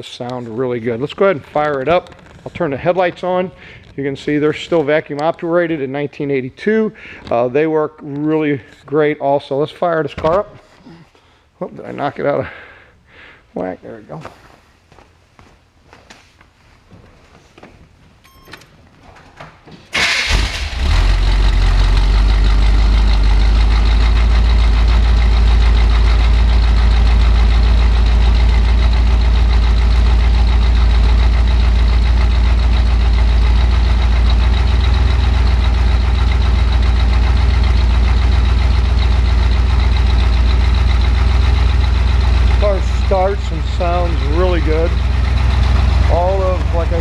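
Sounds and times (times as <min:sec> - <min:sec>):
car engine starting and idling: 0:00.3 - 0:07.5, 0:19.9 - 0:47.0.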